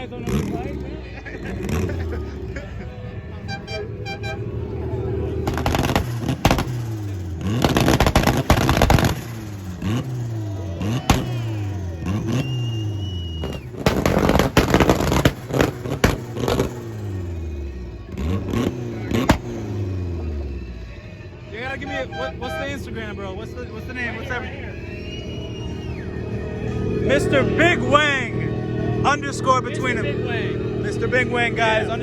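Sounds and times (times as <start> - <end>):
car engine revving against limiter: 0.0 - 20.9
exhaust popping and banging: 3.6 - 20.2.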